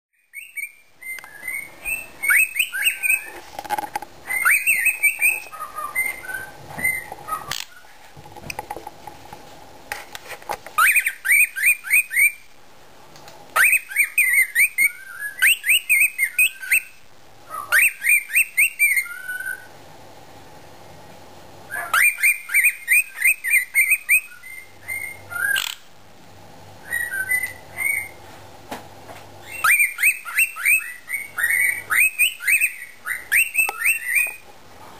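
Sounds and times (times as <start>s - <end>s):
faint steady hum: 0.2s - 34.9s
cockatiel whistling and chattering: 0.3s - 3.4s, 4.2s - 8.0s, 10.8s - 12.5s, 13.6s - 19.7s, 21.7s - 25.8s, 26.8s - 28.2s, 29.4s - 34.4s.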